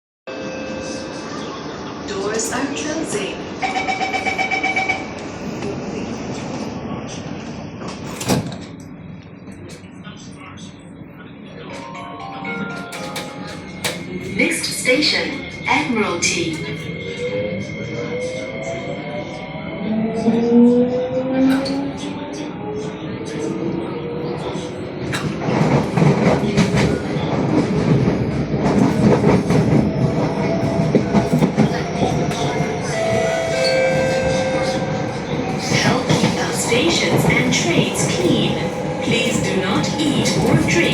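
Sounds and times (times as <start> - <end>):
train wheels rumbling on rails: 12.9 - 17.3, 20.0 - 40.9.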